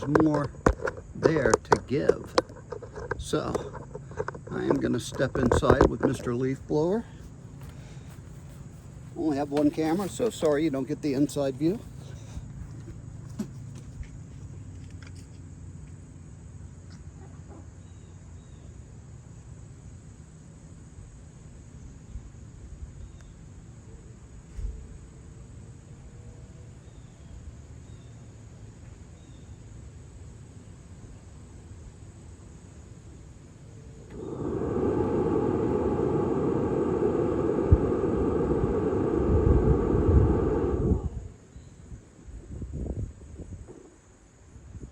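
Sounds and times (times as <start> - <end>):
low outdoor hum: 0.0 - 44.9
leaf blower blowing through duct: 1.7 - 13.6, 34.0 - 41.6.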